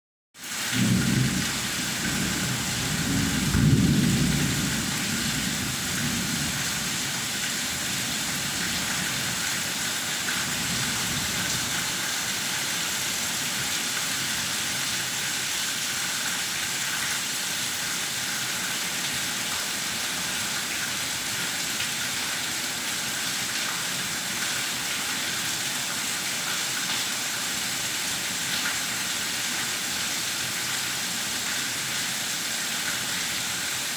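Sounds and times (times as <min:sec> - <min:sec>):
heavy rain: 0:00.4 - 0:33.9
thunder rumble: 0:00.8 - 0:09.0.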